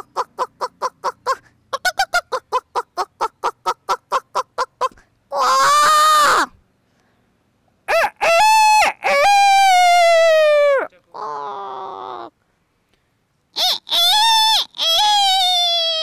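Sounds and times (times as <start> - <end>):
woman imitating chicken clucks: 0.0 - 6.5, 13.6 - 16.0.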